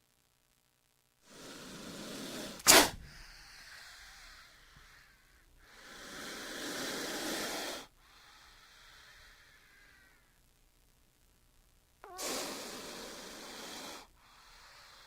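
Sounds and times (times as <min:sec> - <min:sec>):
sharp loud hiss burst: 0:01.2 - 0:03.4, 0:12.0 - 0:14.4
snake hissing: 0:01.2 - 0:10.2, 0:12.0 - 0:15.0.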